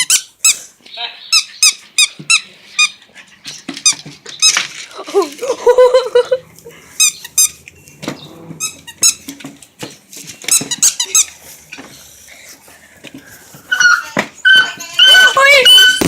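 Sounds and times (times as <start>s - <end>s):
dog yelping and whimpering: 13.7s - 16.0s.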